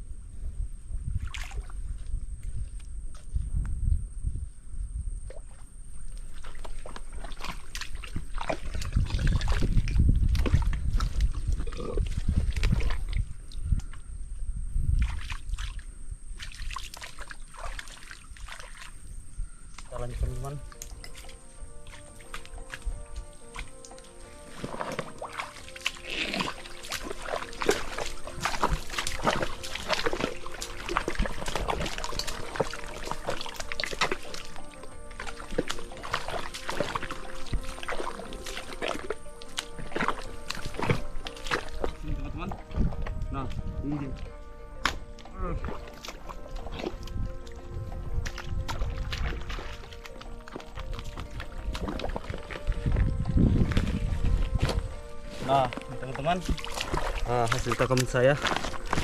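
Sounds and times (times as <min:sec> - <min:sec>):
sloshing in mud and water: 0:01.0 - 0:03.4, 0:05.2 - 0:14.0, 0:14.8 - 0:59.0
splashes: 0:01.2 - 0:01.9, 0:05.3 - 0:13.9, 0:14.9 - 0:19.2, 0:19.8 - 0:59.0
faint background music: 0:17.6 - 0:59.0.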